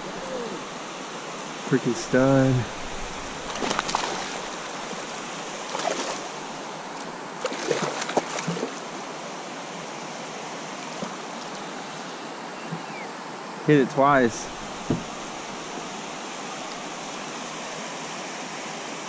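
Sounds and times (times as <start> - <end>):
river water rushing: 0.0 - 19.0
brief splashes or knocks: 3.5 - 4.5.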